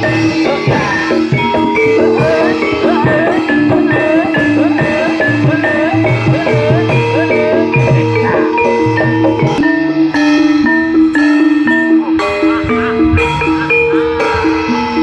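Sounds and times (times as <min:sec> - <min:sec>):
steady drum beat: 0:00.0 - 0:10.7
gamelan metallophones: 0:00.0 - 0:15.0
wavering melody line: 0:00.0 - 0:15.0.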